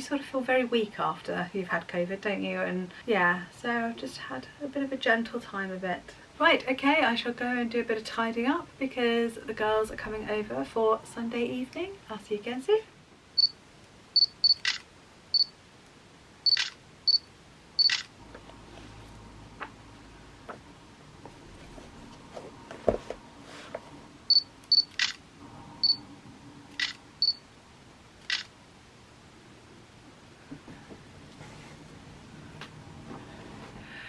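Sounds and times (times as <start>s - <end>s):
camera autofocus beeps: 14.2s - 15.5s, 16.5s - 18.1s, 24.3s - 25.2s, 26.7s - 27.4s, 28.2s - 28.5s
camera shutter click: 14.5s - 14.9s, 16.5s - 16.8s, 17.8s - 18.1s, 24.7s - 25.2s, 26.8s - 27.0s, 28.2s - 28.5s.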